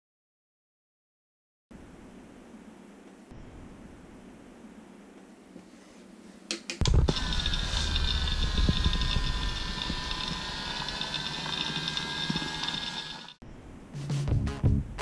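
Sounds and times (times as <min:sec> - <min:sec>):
small vacuum motor whining: 0:06.8 - 0:13.4.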